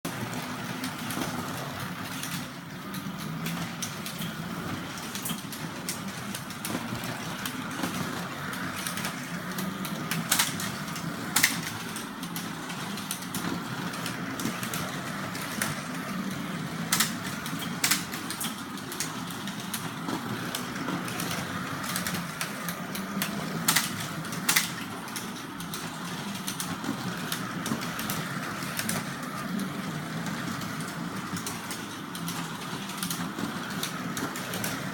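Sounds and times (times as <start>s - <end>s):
small clicks: 20.5s - 29.1s.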